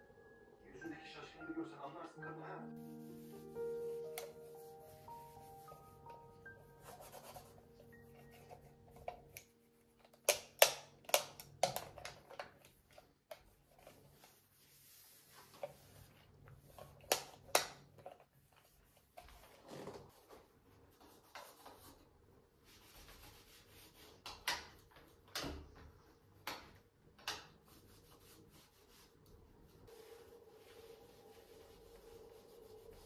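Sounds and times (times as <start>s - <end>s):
soft rubbing: 2.8s - 9.8s, 13.4s - 17.0s, 27.6s - 33.0s.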